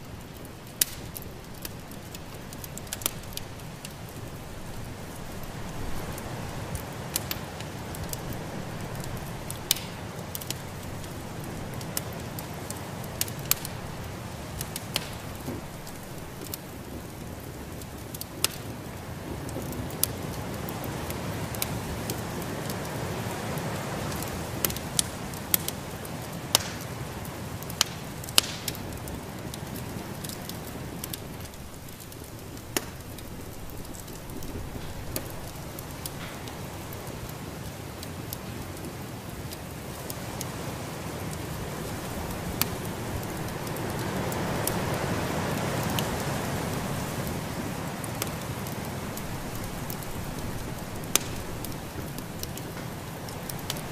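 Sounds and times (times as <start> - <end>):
fireplace fire crackling: 0.0 - 53.9
sharp pops: 26.5 - 26.8, 32.6 - 33.1, 51.0 - 51.8.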